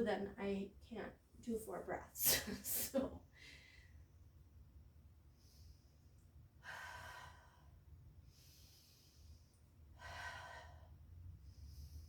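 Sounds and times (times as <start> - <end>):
woman breathing deeply: 5.3 - 12.0.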